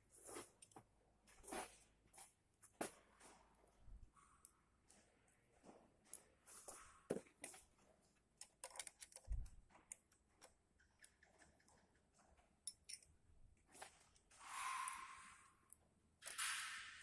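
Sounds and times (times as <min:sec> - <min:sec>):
wrench clicks and taps: 0:08.4 - 0:09.3.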